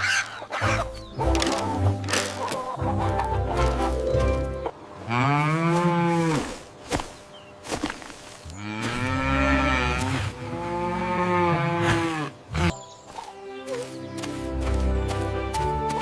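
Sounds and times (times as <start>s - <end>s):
music: 0.5s - 4.7s, 12.7s - 16.0s
cow mooing: 8.6s - 12.7s.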